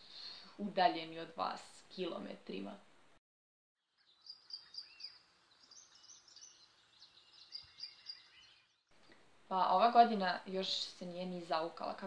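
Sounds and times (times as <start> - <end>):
faint birdsong chirps: 3.8 - 9.3.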